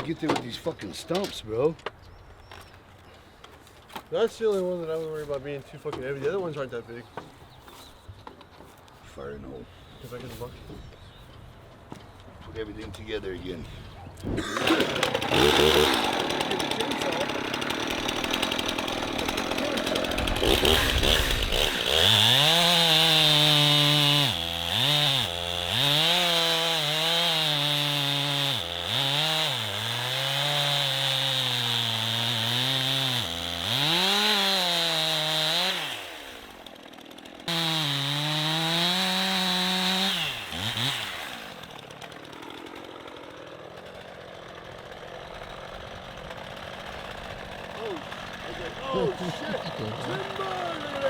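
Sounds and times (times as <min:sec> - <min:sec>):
chainsaw cutting wood: 0:14.2 - 0:51.0.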